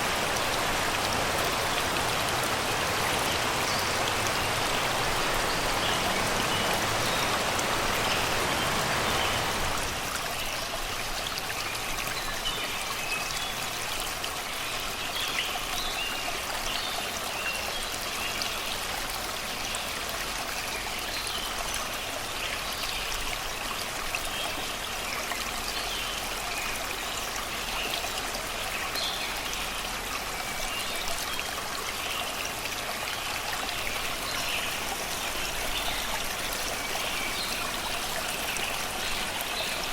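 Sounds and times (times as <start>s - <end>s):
river babbling over rocks: 0.0s - 12.2s, 21.5s - 39.9s.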